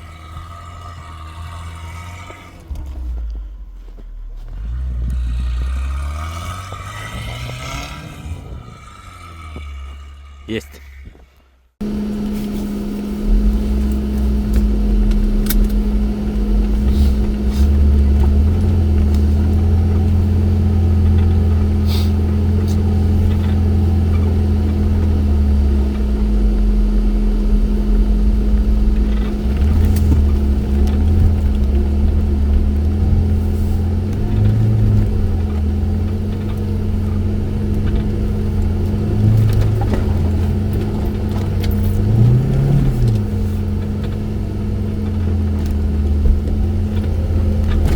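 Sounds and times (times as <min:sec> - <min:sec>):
off-road vehicle engine revving: 0:00.0 - 0:11.0, 0:11.8 - 0:47.9
steady hum: 0:11.8 - 0:42.2.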